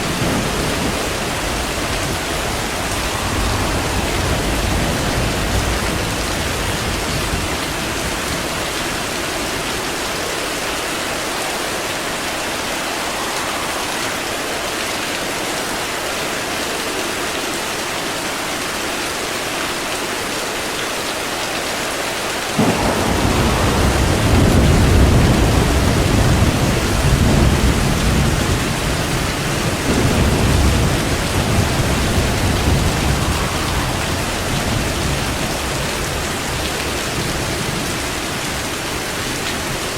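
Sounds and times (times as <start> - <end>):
thunder rolling: 0.0 - 15.7, 22.6 - 39.9
steady rain: 0.0 - 39.9.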